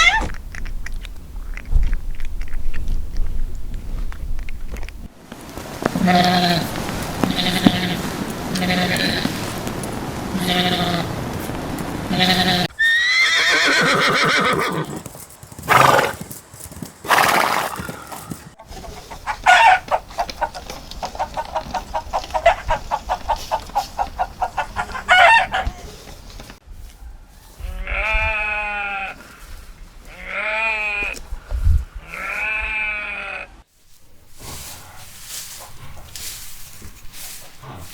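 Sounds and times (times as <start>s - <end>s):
farm animals calling: 0.0s - 0.4s, 5.8s - 15.1s, 17.1s - 26.6s, 27.4s - 31.2s, 32.0s - 33.6s.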